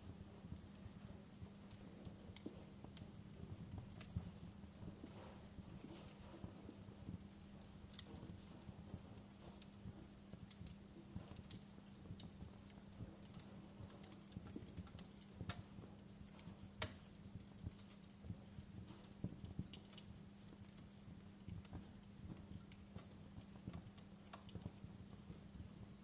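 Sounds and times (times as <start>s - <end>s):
faint low hum: 0.0s - 26.0s
wood fire crackling: 0.0s - 26.0s.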